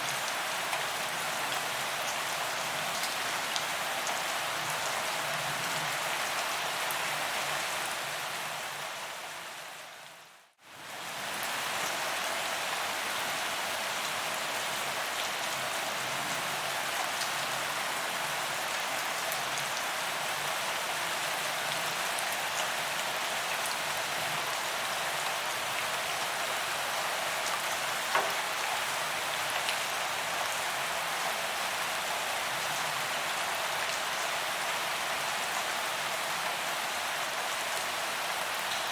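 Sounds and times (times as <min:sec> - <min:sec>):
rain falling on pavement: 0:00.0 - 0:38.9.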